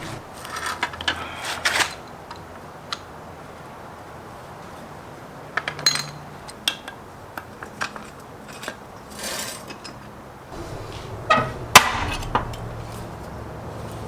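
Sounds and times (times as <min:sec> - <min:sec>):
metal scrape: 0:00.0 - 0:00.3, 0:10.6 - 0:13.9
low steady hum: 0:10.6 - 0:13.9.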